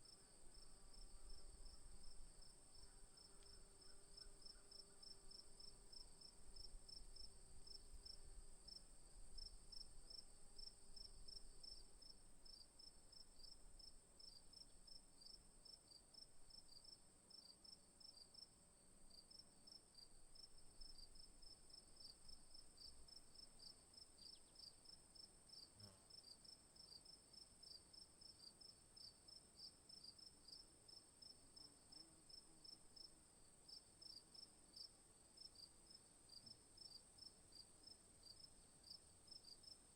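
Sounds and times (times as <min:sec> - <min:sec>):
crickets chirping: 0:19.3 - 0:39.9.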